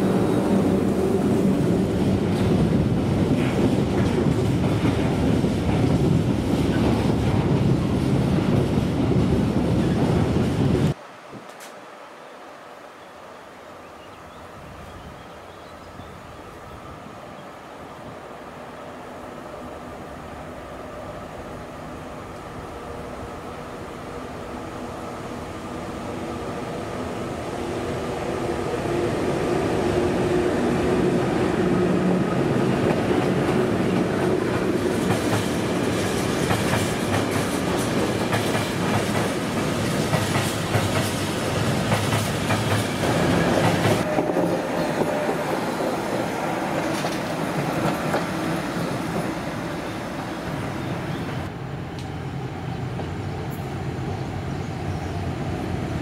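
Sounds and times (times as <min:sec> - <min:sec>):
train wheels clattering over rails: 0:32.6 - 0:49.4.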